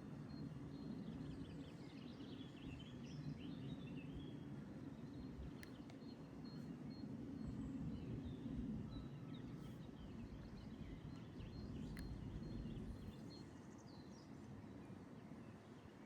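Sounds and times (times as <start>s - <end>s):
steady low rumble: 10.2s - 13.2s.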